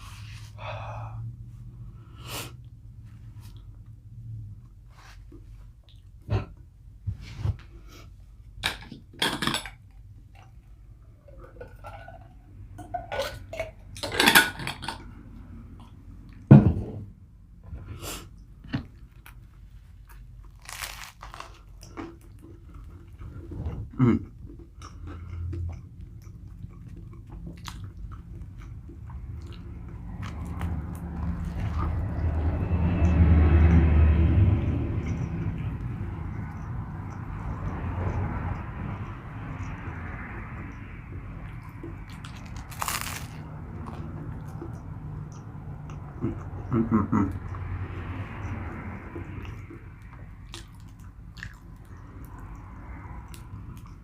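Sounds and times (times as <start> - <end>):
person chewing: 18.0 - 33.4, 34.4 - 54.0
low rumble: 22.8 - 54.0.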